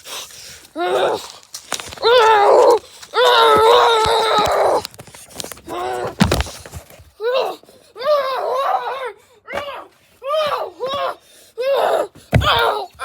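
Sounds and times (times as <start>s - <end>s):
person moaning and wailing: 0.8s - 1.2s.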